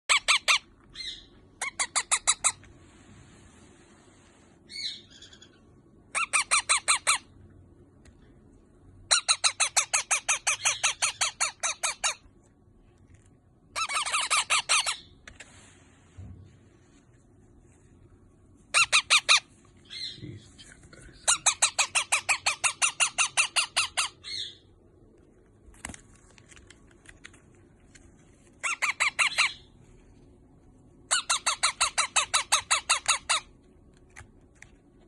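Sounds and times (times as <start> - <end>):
parrot chicks calling: 0.0 - 2.7, 4.7 - 7.4, 9.1 - 12.3, 13.7 - 15.2, 18.7 - 20.4, 21.2 - 24.7, 28.6 - 29.8, 31.1 - 33.6.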